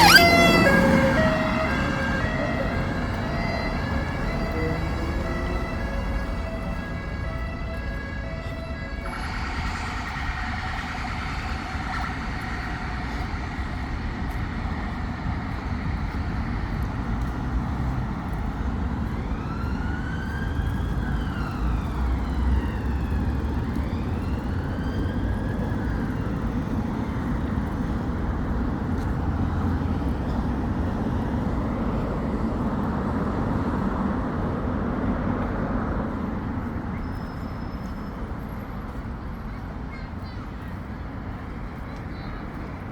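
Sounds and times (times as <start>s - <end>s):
police siren wailing: 0.0s - 32.4s
road traffic rumble: 0.0s - 42.9s.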